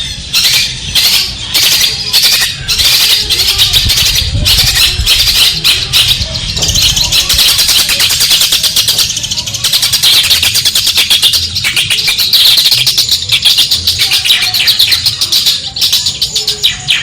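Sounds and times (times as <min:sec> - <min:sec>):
bird singing scratchy notes: 0:00.0 - 0:17.0.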